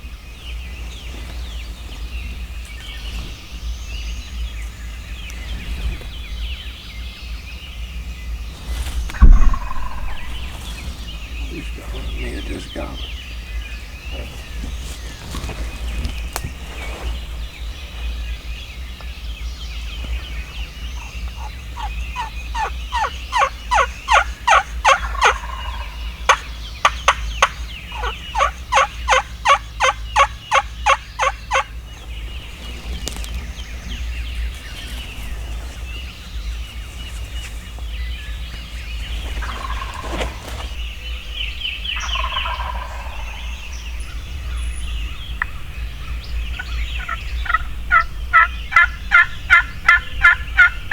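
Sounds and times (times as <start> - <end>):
songbirds chirping faintly: 0.0 - 50.9
turkeys gobbling: 9.2 - 13.2, 20.9 - 35.8, 38.7 - 40.8, 42.0 - 43.8, 46.5 - 50.9.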